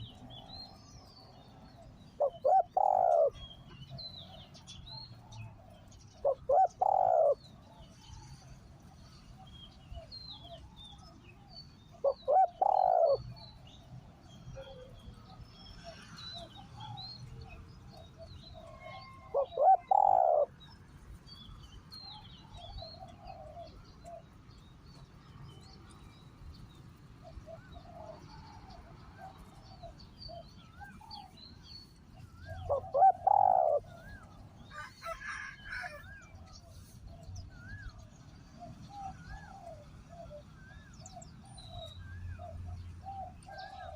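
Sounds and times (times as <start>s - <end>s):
dove cooing: 0.0s - 3.6s, 5.1s - 8.6s, 11.9s - 13.6s, 18.0s - 20.7s, 22.1s - 24.3s, 27.2s - 31.4s, 32.2s - 43.9s
small birds chirping faintly: 0.0s - 43.9s.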